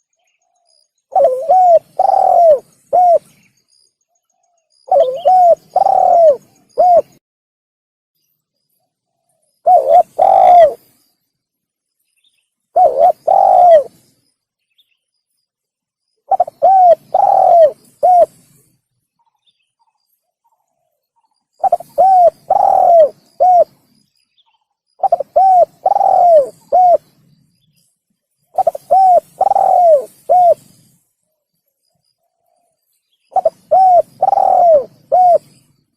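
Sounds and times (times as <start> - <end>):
dove cooing: 1.1 - 3.3, 4.8 - 7.2, 9.6 - 10.9, 12.8 - 14.0, 16.3 - 18.6, 21.6 - 23.9, 25.0 - 27.1, 28.6 - 31.0, 33.3 - 35.6.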